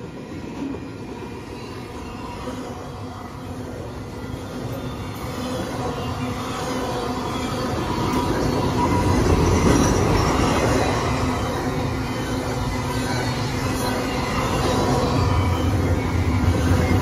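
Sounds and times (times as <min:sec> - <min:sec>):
train wheels running on rails: 0:00.0 - 0:17.0.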